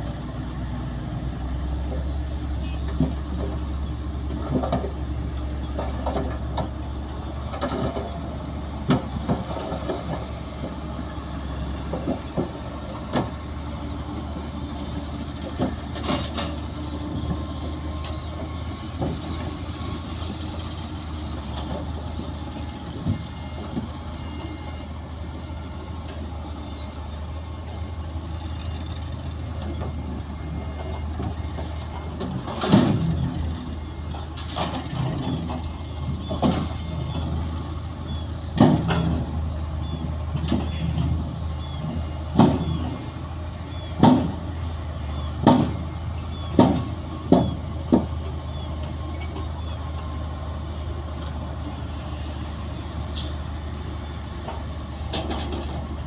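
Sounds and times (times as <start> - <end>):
heavy diesel engine running: 0.0 - 56.0
sharp knocks and clanks: 30.8 - 33.3, 38.6 - 39.3, 41.8 - 43.0, 44.0 - 44.5, 45.4 - 45.8, 46.5 - 48.3.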